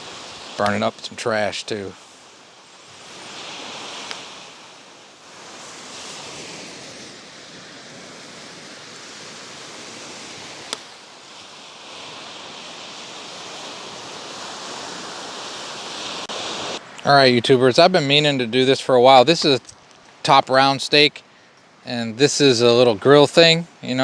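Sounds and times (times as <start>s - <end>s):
campfire hissing: 0.0s - 17.9s
fire popping: 10.2s - 11.5s.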